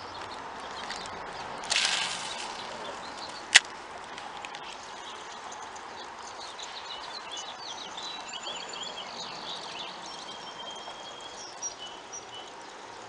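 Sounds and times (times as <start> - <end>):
steady background noise: 0.0 - 13.0
birds chirping and singing: 4.6 - 12.8.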